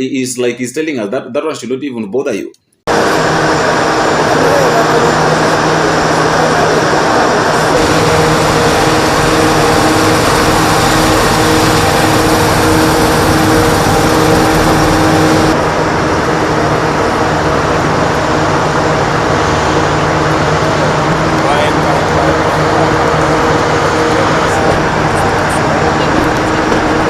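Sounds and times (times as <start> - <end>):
steady low hum: 2.9 - 27.0
vehicle rushing noise: 2.9 - 27.0.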